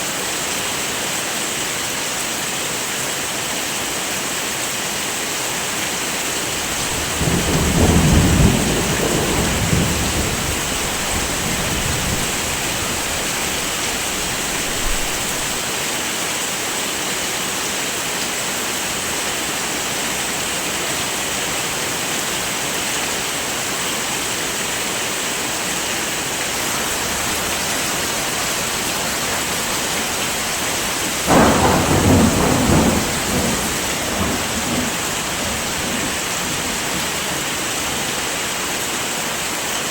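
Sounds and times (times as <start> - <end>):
heavy rain: 0.0 - 39.9
low rolls of thunder: 6.5 - 15.6, 26.5 - 37.6.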